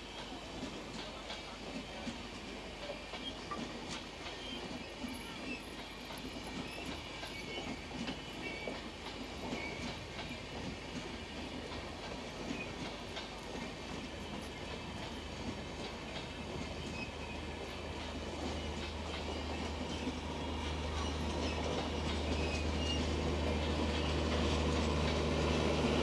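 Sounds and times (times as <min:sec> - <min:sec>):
train coaches rolling on rails: 0:00.0 - 0:26.0.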